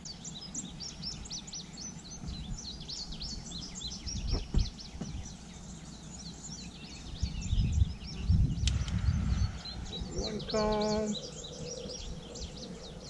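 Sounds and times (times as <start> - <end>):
small birds chirping: 0.0 - 13.0
low rumble: 7.4 - 13.0.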